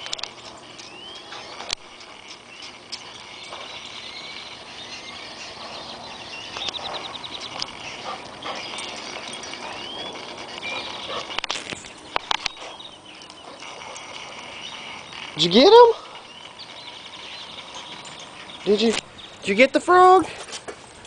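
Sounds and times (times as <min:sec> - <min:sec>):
birds singing: 0:00.0 - 0:21.0
sharp clicks: 0:06.5 - 0:15.4.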